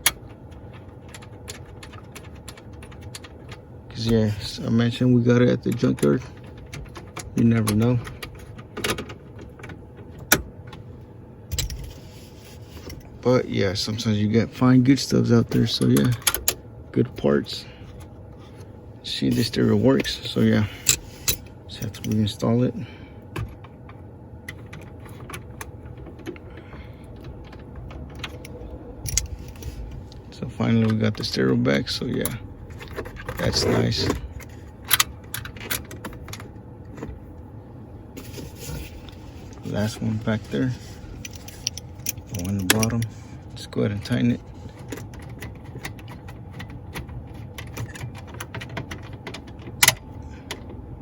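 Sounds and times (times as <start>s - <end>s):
low hum: 0.0s - 48.2s
clicks and knocks of handling: 23.3s - 37.2s, 38.2s - 43.2s, 44.0s - 50.8s.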